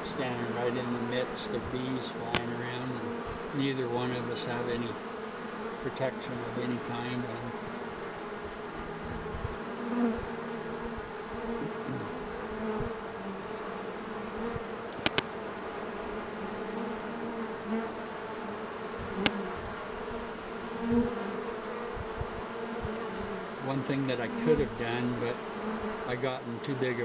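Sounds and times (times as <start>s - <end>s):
bee swarm buzzing: 0.0s - 27.0s
sharp clicks: 14.9s - 15.3s.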